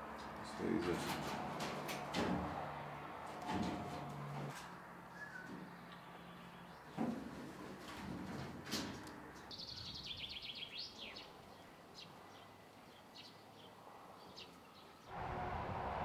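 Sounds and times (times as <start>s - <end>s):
birds chirping: 9.5s - 15.1s
loud rushing noise: 15.1s - 16.0s.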